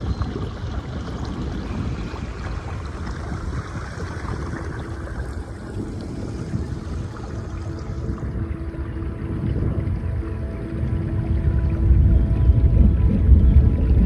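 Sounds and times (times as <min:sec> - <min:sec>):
storm wind buffeting microphone: 0:00.0 - 0:14.0.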